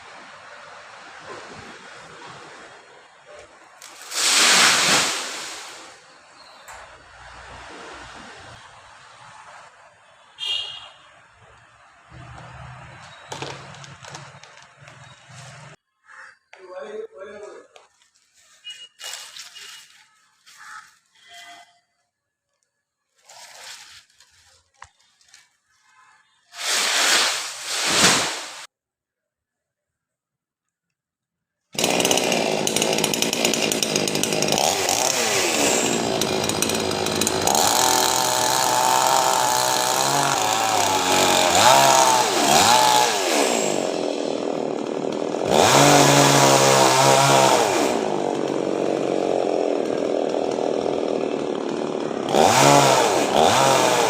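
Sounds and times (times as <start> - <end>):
chainsaw revving while cutting: 31.8 - 54.0.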